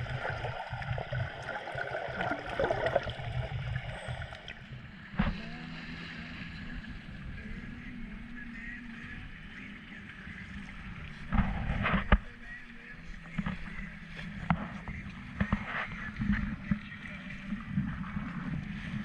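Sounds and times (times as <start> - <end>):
sharp knocks and splashes: 0.0 - 3.6
water rushing around hull: 0.0 - 19.0.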